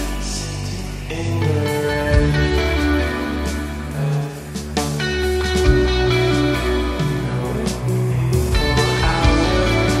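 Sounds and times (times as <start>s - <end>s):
band playing a song: 2.1s - 10.0s.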